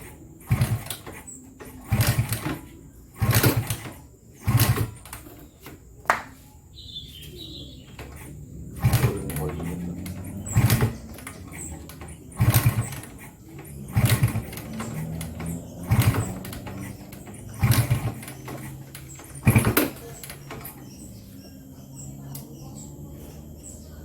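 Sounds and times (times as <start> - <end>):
motorcycle engine cranking: 0.0 - 6.0, 7.2 - 24.0.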